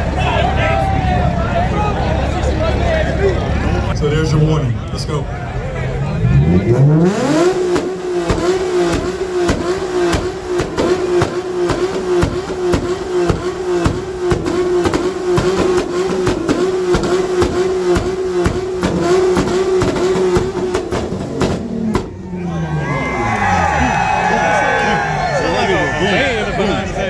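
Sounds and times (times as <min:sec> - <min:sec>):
car engine revving at limiter: 0:06.0 - 0:27.0.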